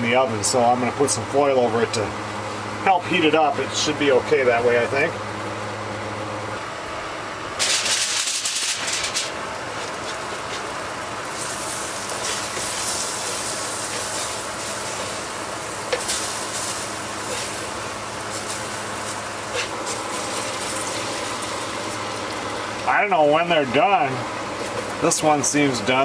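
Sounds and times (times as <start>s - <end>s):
aluminium foil crinkling: 7.6s - 10.7s
mushrooms sizzling in butter: 7.7s - 22.9s, 24.2s - 25.5s.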